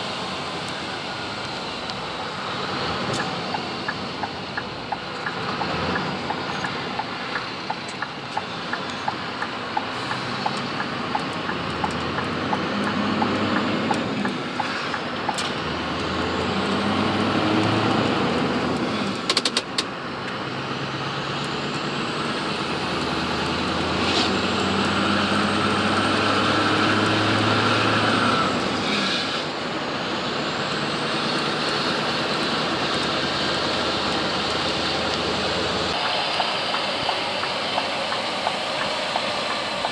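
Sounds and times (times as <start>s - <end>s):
truck diesel engine from inside cab: 0.0s - 39.9s
regular ticking: 3.1s - 15.4s.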